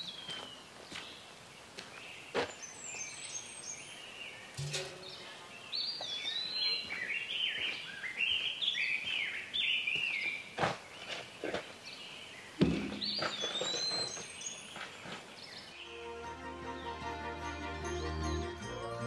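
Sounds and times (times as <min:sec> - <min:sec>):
songbird whistling: 0:13.0 - 0:14.6.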